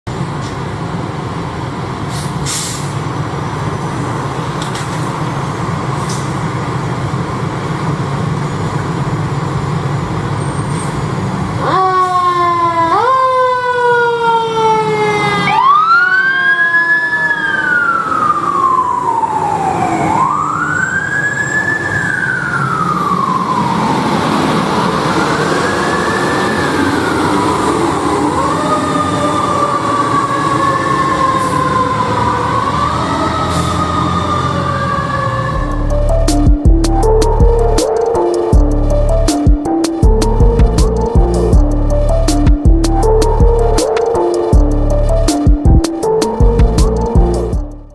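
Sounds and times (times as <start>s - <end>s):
traffic noise: 0.1s - 47.9s
siren wailing: 11.6s - 47.9s
truck engine: 35.1s - 47.9s.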